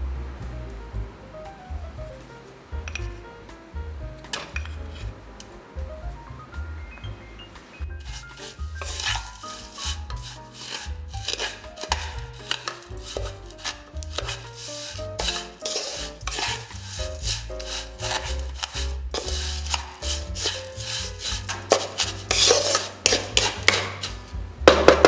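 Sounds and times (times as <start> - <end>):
background music: 0.0 - 25.0
utensil scraping a cooking pan: 4.3 - 5.2, 8.0 - 25.0.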